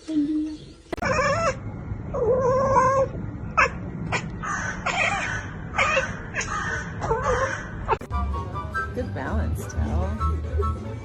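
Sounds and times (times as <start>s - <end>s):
cat yowling: 1.0s - 8.0s.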